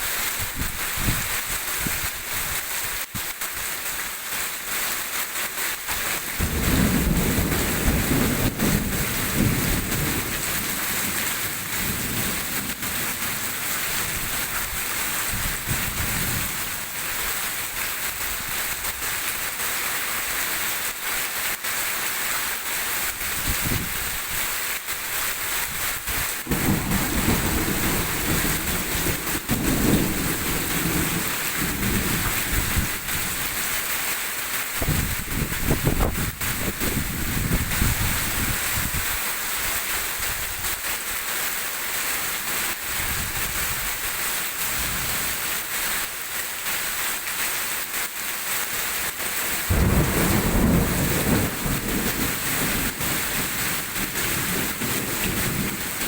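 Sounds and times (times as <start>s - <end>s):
heavy rain pouring: 0.0s - 56.0s
thunder rumbling: 6.4s - 17.2s, 26.4s - 33.6s, 49.6s - 56.0s.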